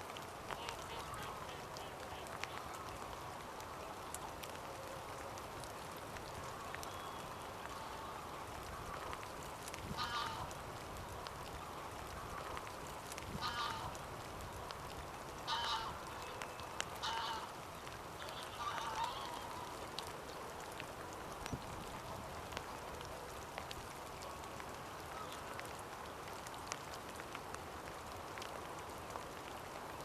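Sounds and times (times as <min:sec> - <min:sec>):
steady hiss: 0:00.0 - 0:30.0
faint ticks: 0:00.1 - 0:30.0
waterfowl calling: 0:00.5 - 0:03.0, 0:09.9 - 0:10.6, 0:13.4 - 0:14.0, 0:15.4 - 0:17.6, 0:18.2 - 0:19.9.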